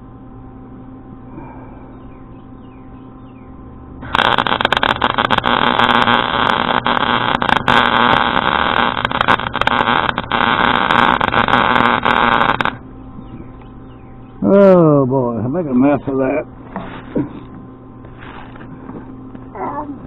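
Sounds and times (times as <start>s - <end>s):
welder arc crackling and sputtering: 4.0s - 13.7s.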